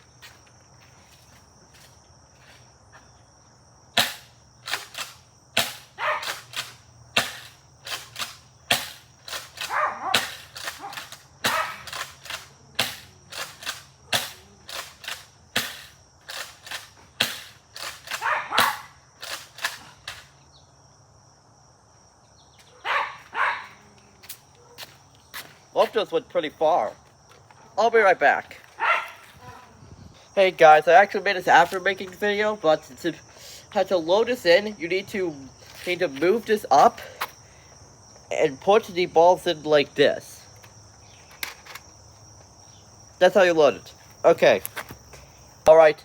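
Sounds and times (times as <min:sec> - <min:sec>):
crickets chirring: 0:00.0 - 0:46.0
toy blaster pumping and firing: 0:04.0 - 0:20.3.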